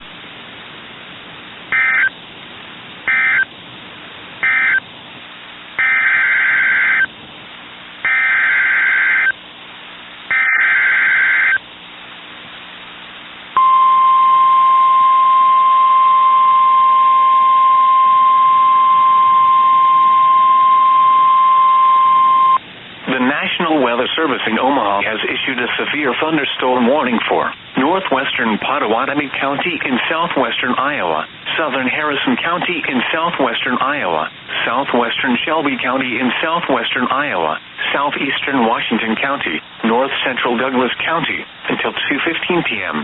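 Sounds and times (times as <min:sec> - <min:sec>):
steady warning alarm tone: 0:01.7 - 0:02.2, 0:03.1 - 0:03.5, 0:04.4 - 0:04.8, 0:05.8 - 0:07.1, 0:08.0 - 0:09.4, 0:10.3 - 0:11.6, 0:13.6 - 0:22.6
warbling digital data bursts: 0:03.1 - 0:03.5, 0:04.4 - 0:04.8.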